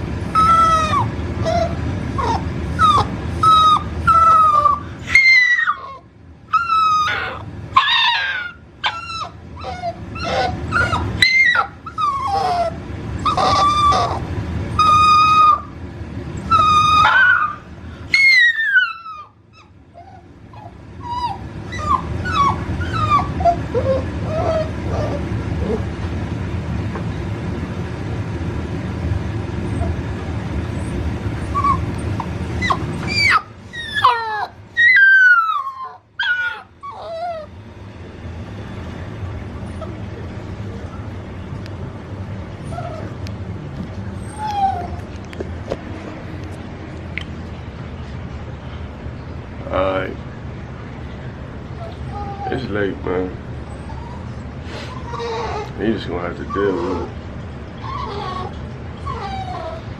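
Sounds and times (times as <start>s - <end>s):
steady low hum: 0.0s - 59.9s
puppy whining and crying: 0.2s - 15.8s, 16.4s - 26.0s, 29.6s - 37.7s, 39.6s - 41.2s, 42.5s - 43.2s, 44.0s - 46.3s, 51.7s - 52.8s, 53.5s - 55.8s, 56.4s - 59.9s.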